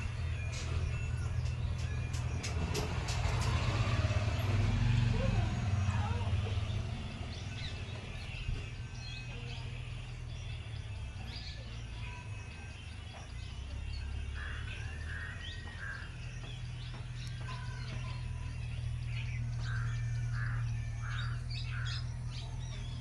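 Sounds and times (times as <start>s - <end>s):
birds chirping and calling: 0.0s - 23.0s
long arching bird call: 18.9s - 23.0s.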